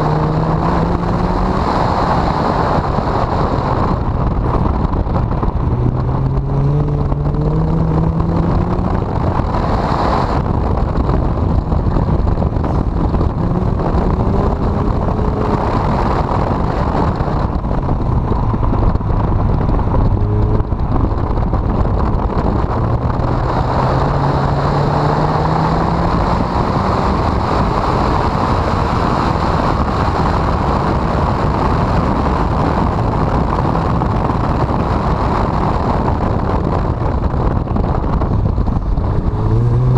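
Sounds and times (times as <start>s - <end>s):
car engine accelerating: 0.0s - 39.9s
wind on microphone: 0.0s - 39.9s.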